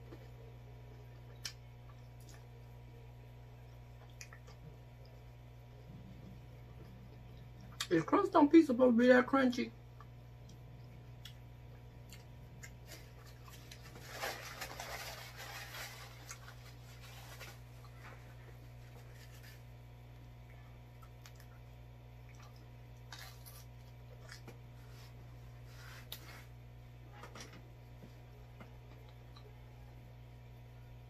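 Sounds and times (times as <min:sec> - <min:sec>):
chewing crunchy pizza crust: 0:00.0 - 0:08.0, 0:09.9 - 0:26.4
low hum: 0:00.0 - 0:31.0.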